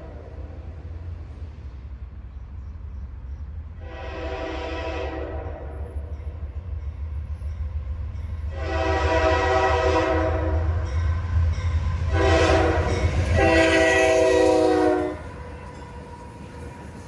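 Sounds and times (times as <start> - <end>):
train rumble: 0.0 - 17.0
locomotive air horn blasts: 3.8 - 6.0, 8.5 - 10.9, 12.1 - 15.4.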